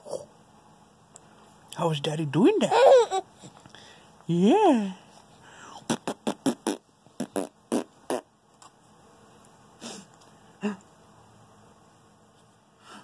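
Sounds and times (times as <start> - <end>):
man making fake fart noises: 5.8 - 8.3.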